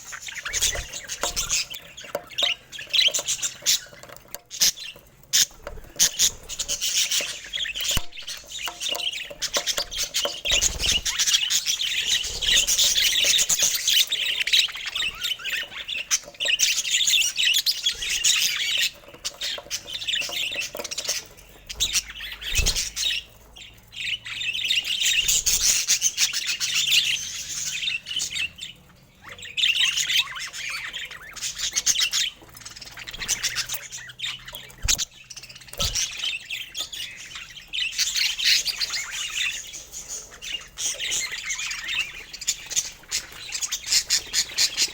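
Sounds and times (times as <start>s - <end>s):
budgerigars chattering and warbling: 0.0s - 44.9s.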